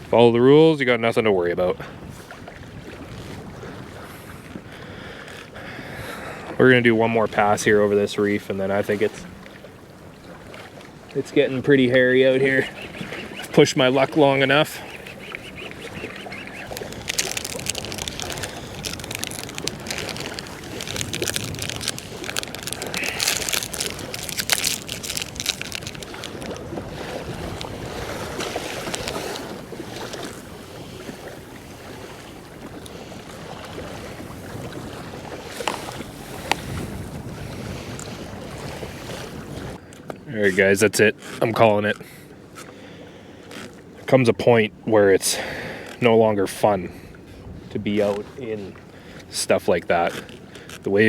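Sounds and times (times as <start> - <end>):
waves slapping a kayak: 0.0 - 51.0
wind buffeting microphone: 1.8 - 39.8, 46.9 - 49.1.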